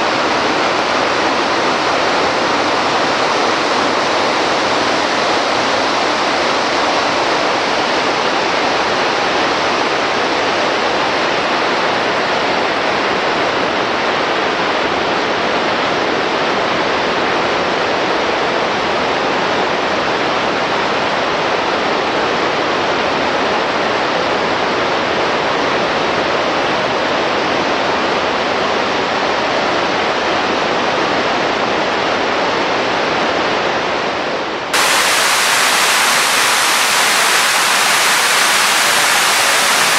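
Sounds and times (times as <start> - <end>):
waterfall rushing: 34.8 - 39.9.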